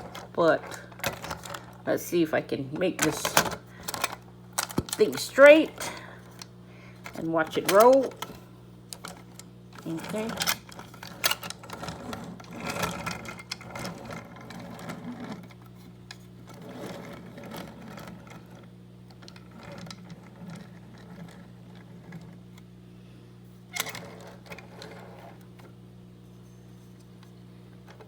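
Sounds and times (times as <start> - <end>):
low electric hum: 0.0 - 28.0
toy train clicks and rattles: 3.0 - 6.0.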